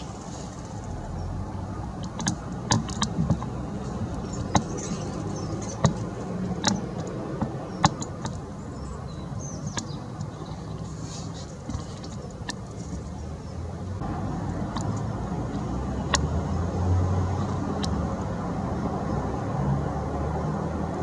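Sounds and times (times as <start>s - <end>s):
distant road traffic rumble: 0.0s - 21.0s
birds pecking at feeder: 2.1s - 13.2s.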